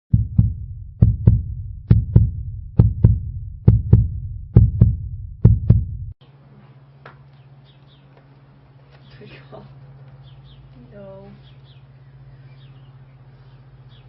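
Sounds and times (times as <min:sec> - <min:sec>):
heartbeat thumps: 0:00.1 - 0:06.2.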